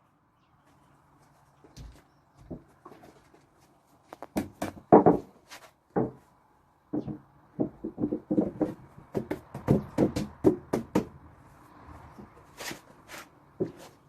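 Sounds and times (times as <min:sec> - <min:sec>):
knocks on wooden slabs: 0:04.2 - 0:06.3, 0:06.9 - 0:11.2.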